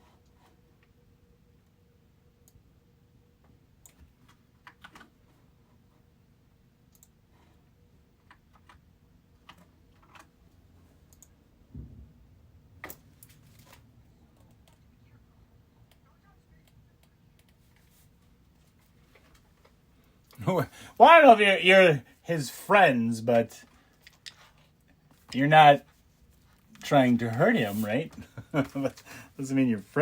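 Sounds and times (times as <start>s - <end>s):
typing on computer keyboard: 3.9s - 5.1s
dull low thump: 11.7s - 12.3s.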